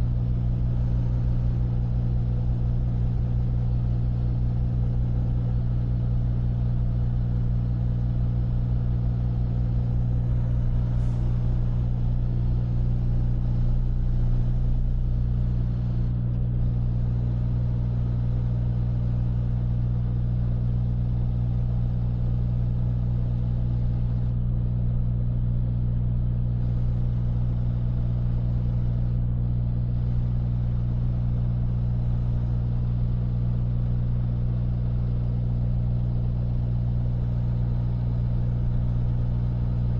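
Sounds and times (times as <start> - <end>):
truck diesel engine droning: 10.1 - 17.4.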